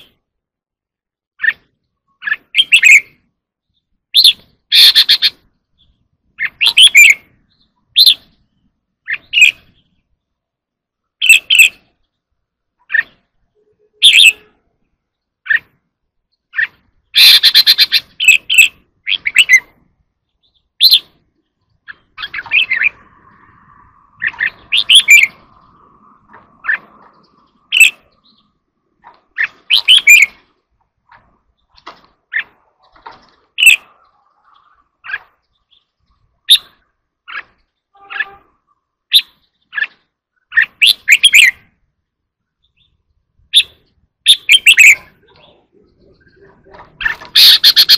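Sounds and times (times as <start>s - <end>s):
bird singing loud phrases: 0.0s - 0.2s, 1.4s - 47.9s
bird rattling call: 4.2s - 5.4s, 16.5s - 19.7s, 21.9s - 23.0s, 24.2s - 25.4s, 29.0s - 30.5s, 46.9s - 47.9s.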